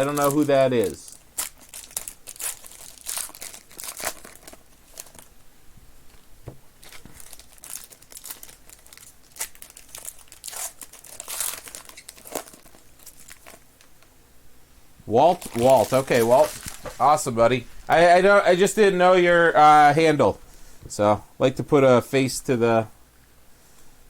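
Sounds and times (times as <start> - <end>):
wrapper crinkling and tearing: 0.0 - 5.3, 6.8 - 14.1, 15.3 - 17.3.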